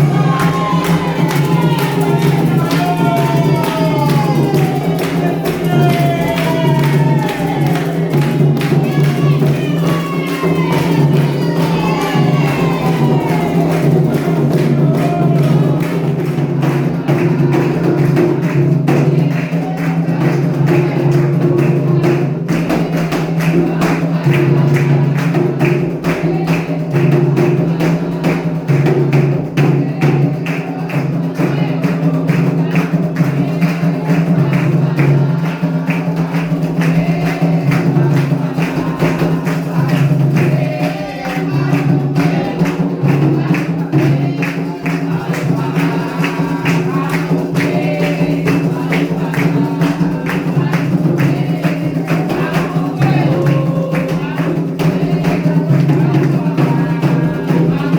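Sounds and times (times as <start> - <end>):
hand drums and percussion: 0.0 - 57.9.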